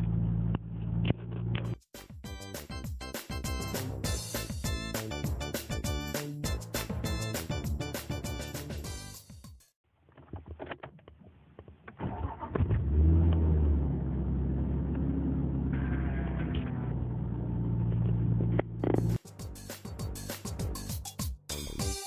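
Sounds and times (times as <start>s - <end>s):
car engine revving and idling: 0.0s - 1.6s, 12.2s - 19.2s
car engine cranking: 11.9s - 19.2s.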